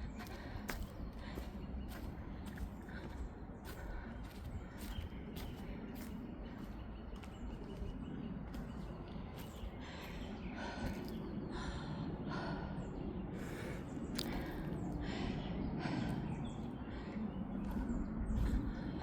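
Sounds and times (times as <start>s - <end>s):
steady low rumble: 0.0s - 19.0s
footsteps on forest floor: 0.1s - 11.2s, 17.6s - 19.0s.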